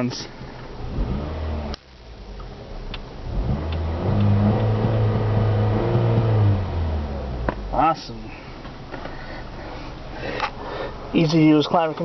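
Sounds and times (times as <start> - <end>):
car engine revving: 0.6 - 8.0.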